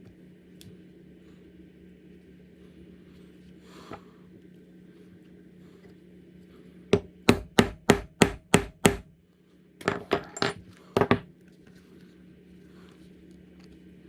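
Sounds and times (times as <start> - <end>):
mallet striking leather tool: 7.0 - 9.1.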